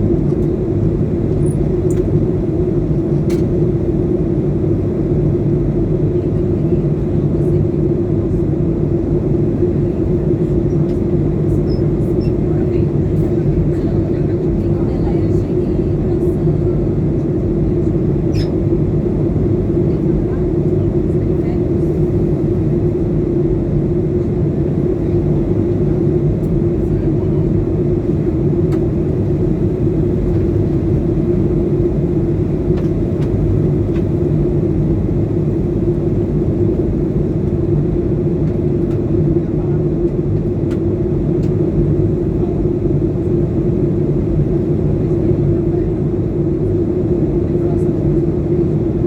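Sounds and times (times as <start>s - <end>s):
airliner cabin engine drone: 0.0s - 49.0s
constant hum: 0.0s - 49.0s.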